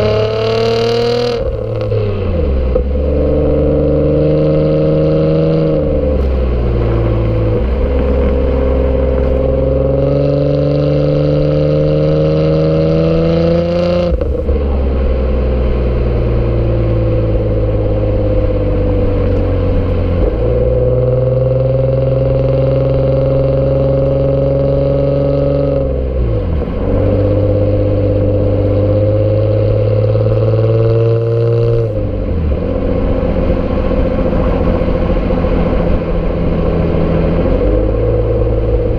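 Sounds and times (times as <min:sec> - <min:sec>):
car exhaust while driving: 0:00.0 - 0:38.9.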